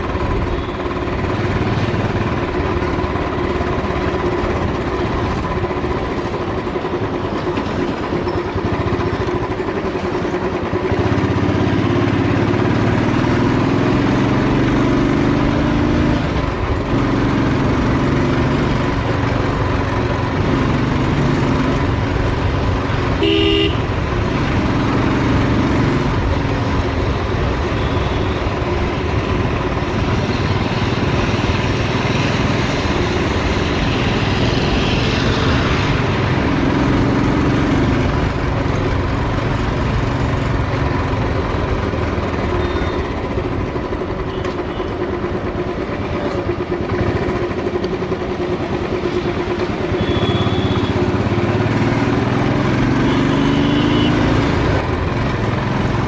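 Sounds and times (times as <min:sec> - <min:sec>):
motorcycle engine accelerating: 0:00.0 - 0:56.0
horn toot: 0:23.2 - 0:23.9, 0:49.9 - 0:51.0, 0:53.0 - 0:54.4.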